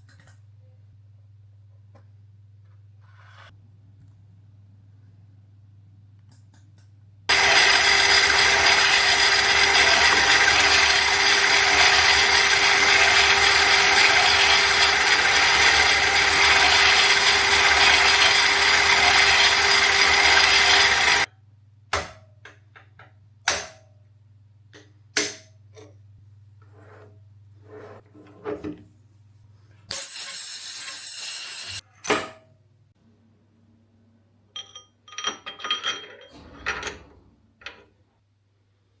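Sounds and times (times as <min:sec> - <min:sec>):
metal lathe machining: 0:07.3 - 0:21.3.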